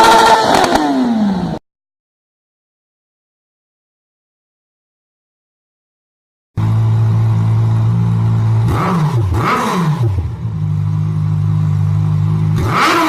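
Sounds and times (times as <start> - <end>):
motorcycle engine idling and revving: 0.0 - 1.6, 6.6 - 13.0.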